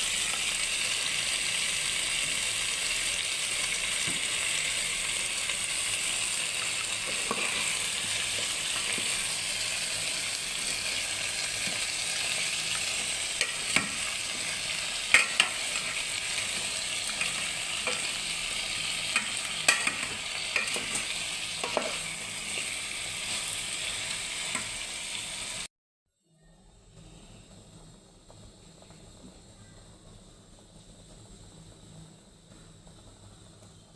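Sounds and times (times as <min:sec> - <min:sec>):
food sizzling in oil: 0:00.0 - 0:25.7.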